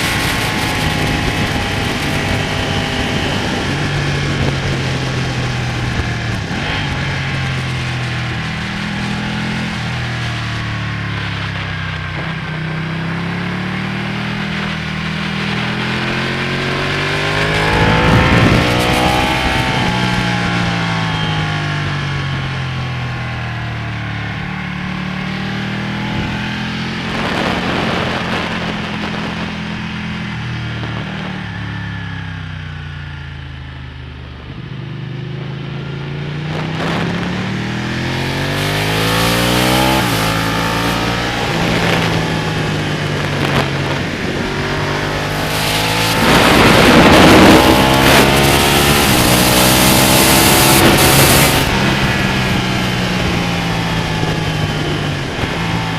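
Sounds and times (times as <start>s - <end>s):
wind rushing: 0.0s - 9.9s, 14.9s - 21.9s, 36.4s - 55.9s
motorcycle engine revving: 0.0s - 55.9s.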